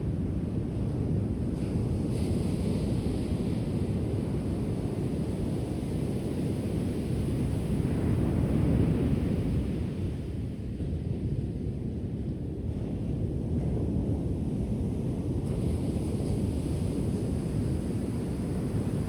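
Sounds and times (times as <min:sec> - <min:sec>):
wind noise on microphone: 0:00.0 - 0:19.0
ocean waves washing ashore: 0:15.4 - 0:19.0.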